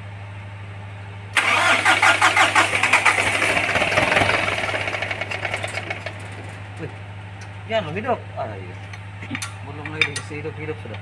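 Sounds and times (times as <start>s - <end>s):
diesel engine starter cranking: 1.4s - 6.7s.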